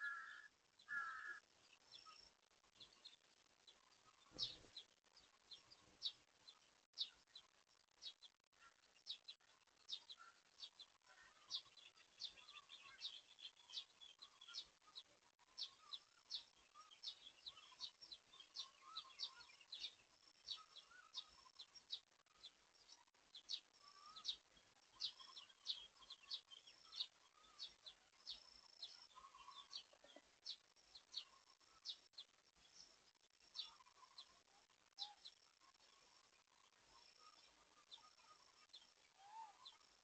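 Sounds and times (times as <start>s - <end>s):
low wavering birdsong: 0.0s - 40.0s.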